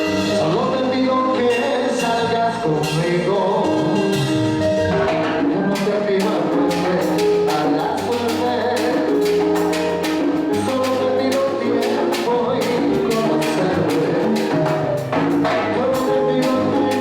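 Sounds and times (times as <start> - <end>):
salsa band playing: 0.0 - 17.0
sharp percussion strikes: 4.0 - 17.0.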